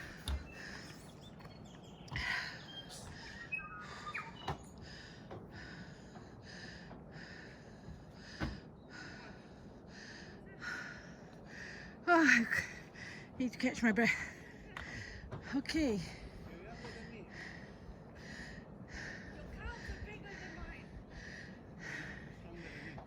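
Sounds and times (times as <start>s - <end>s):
bird chirping: 0.0s - 5.2s
person panting: 4.8s - 12.0s, 16.1s - 23.0s.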